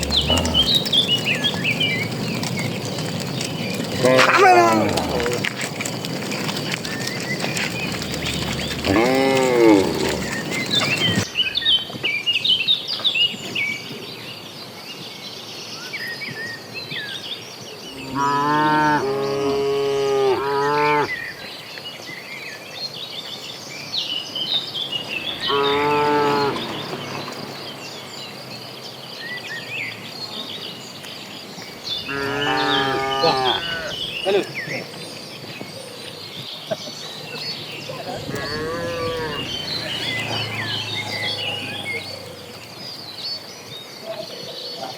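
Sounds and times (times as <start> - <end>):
cattle mooing: 0.0 - 2.5, 3.8 - 11.2, 18.0 - 21.1, 25.1 - 27.8, 32.1 - 34.1, 38.0 - 42.8
small birds chirping: 0.0 - 44.9.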